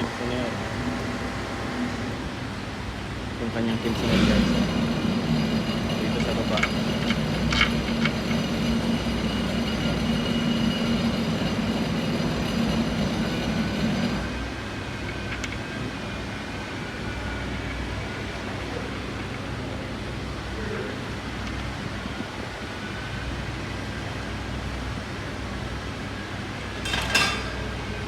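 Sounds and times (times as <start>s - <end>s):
machine hum with held tones: 0.0s - 2.7s.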